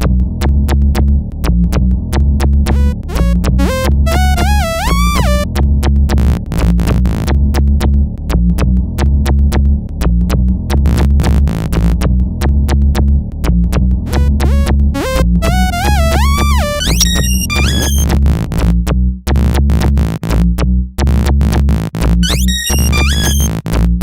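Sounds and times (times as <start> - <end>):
electronic music: 2.7 - 5.5, 14.2 - 18.1, 22.2 - 23.6.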